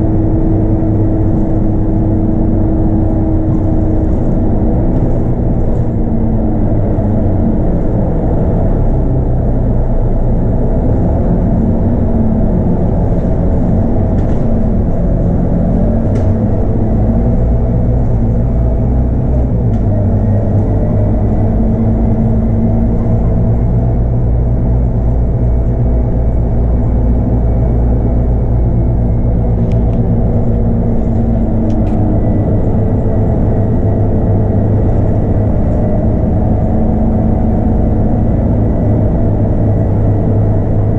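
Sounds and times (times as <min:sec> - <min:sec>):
bus diesel engine running: 0:00.0 - 0:40.9.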